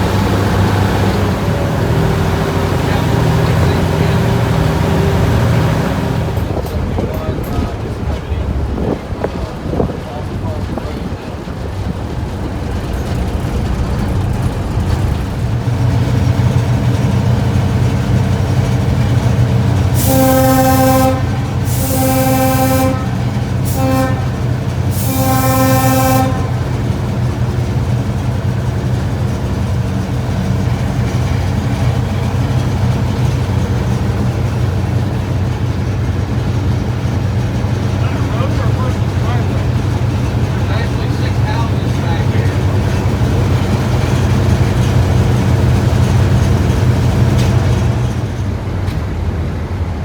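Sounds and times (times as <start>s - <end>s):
locomotive air horn blasts: 0.0s - 6.6s, 19.8s - 27.2s
diesel locomotive engine running: 0.0s - 50.0s.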